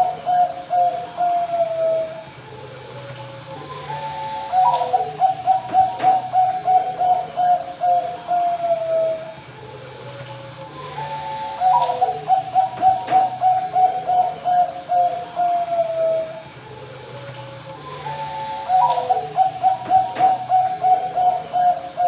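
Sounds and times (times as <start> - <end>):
dove cooing: 0.0 - 22.0.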